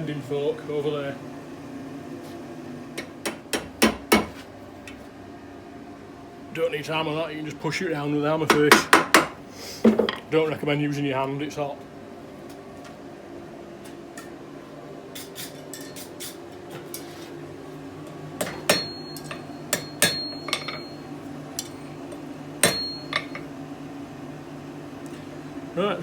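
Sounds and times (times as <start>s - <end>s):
hammer striking metal: 18.4s - 21.0s, 22.6s - 23.4s.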